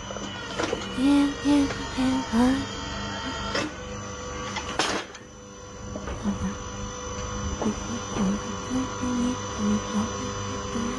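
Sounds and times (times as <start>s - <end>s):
steady hum: 0.0s - 10.9s.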